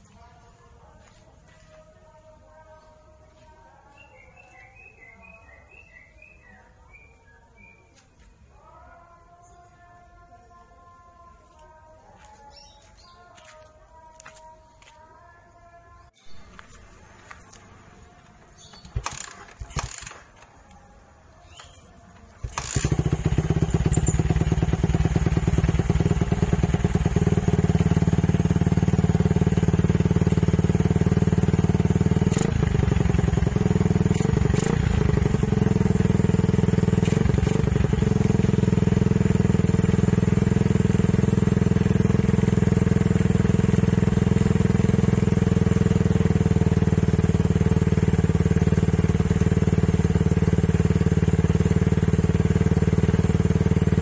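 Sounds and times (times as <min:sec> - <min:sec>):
motorcycle engine idling: 0:16.3 - 0:20.7, 0:21.4 - 0:54.0.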